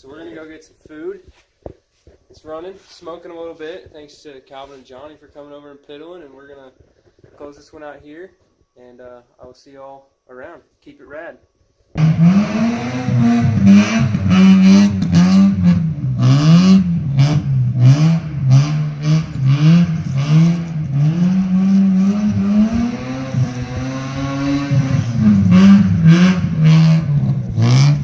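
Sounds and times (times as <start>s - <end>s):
rotary engine revving: 12.0s - 28.0s.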